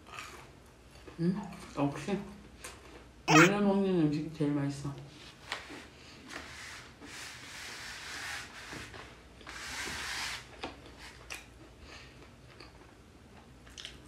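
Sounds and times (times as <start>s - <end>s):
small mouth clicks: 3.3s - 3.5s
chewing crispy fried chicken: 11.3s - 14.0s.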